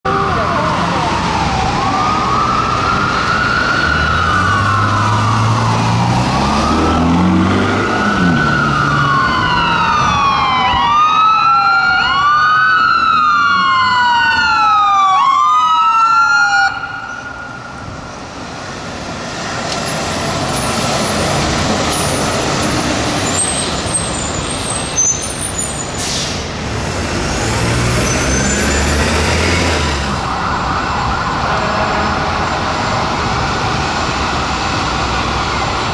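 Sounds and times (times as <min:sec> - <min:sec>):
engine and traffic noise: 0:00.0 - 0:35.9
fire engine sirens wailing: 0:00.0 - 0:35.9
truck engine passing: 0:00.1 - 0:10.4, 0:18.2 - 0:35.9.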